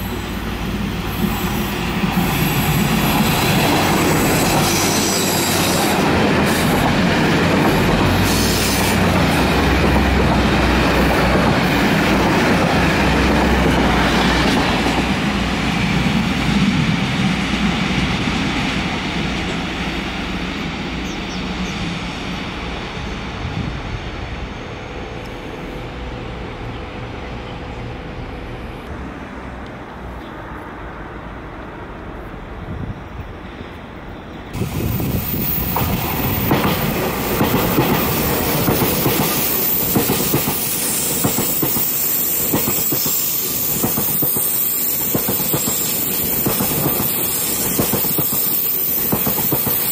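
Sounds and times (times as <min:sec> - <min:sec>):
train wheels clattering on rails: 0:00.8 - 0:20.0, 0:34.5 - 0:49.9.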